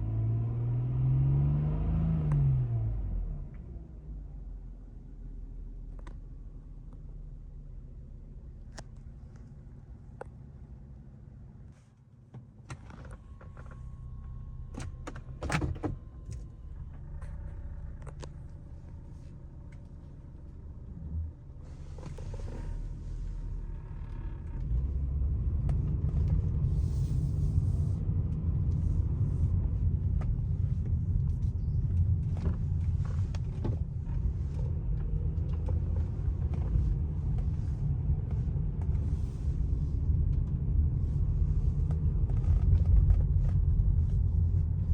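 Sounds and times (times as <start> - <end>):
car engine rumbling: 0.0 - 44.9.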